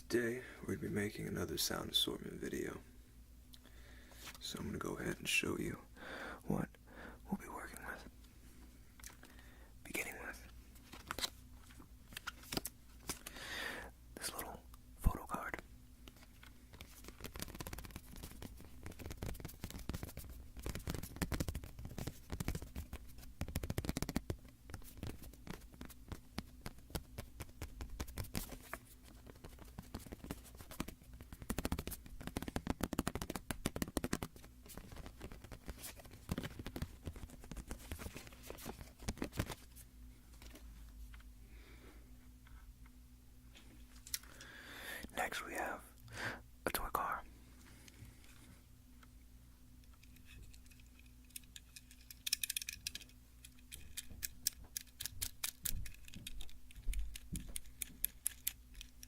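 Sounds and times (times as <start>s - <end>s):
card scratching strokes: 16.7s - 39.4s.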